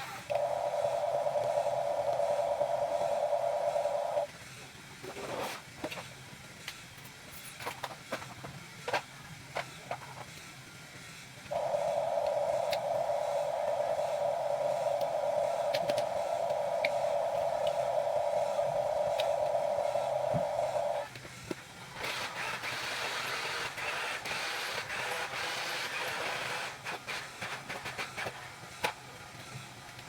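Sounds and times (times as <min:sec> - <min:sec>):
electric motors whirring: 0:00.0 - 0:04.3, 0:11.5 - 0:21.1
harsh hiss: 0:00.0 - 0:04.3, 0:11.3 - 0:27.8
clicks: 0:11.5 - 0:21.2.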